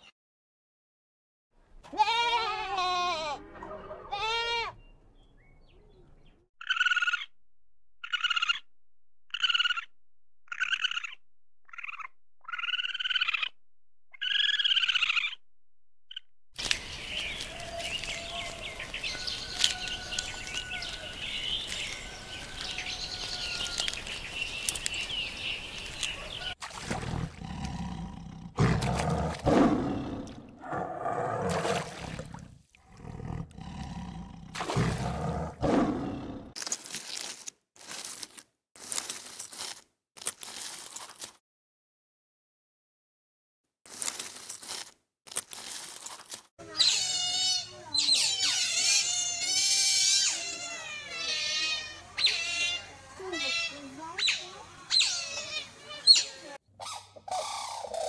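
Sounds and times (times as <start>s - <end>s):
goat bleat: 1.8s - 4.8s
birds chirping: 3.4s - 7.3s, 16.1s - 26.6s, 46.6s - 58.0s
tiger growling and roaring: 26.9s - 36.6s.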